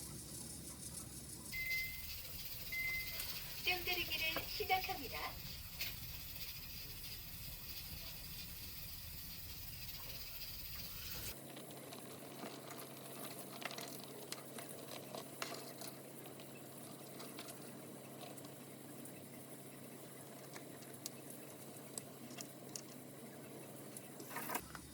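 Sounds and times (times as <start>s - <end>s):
steady hiss: 0.0s - 11.4s
utensils clicking and tapping: 1.5s - 11.4s.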